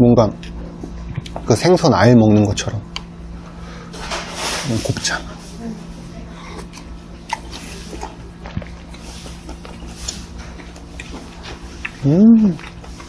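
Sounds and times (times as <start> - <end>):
steady low hum: 0.0 - 13.0
wet chewing clicks and smacks: 6.6 - 13.0.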